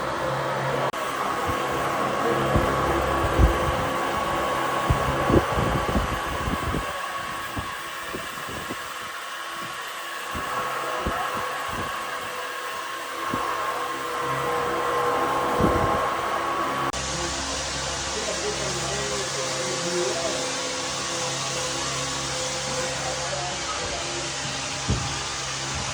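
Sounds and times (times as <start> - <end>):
small motor whining: 0.0 - 25.9.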